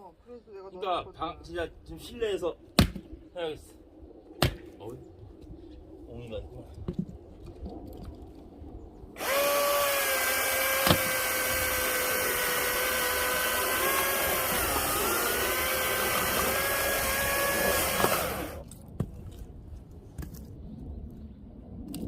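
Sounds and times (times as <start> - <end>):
electric chainsaw cutting log: 9.2 - 18.6.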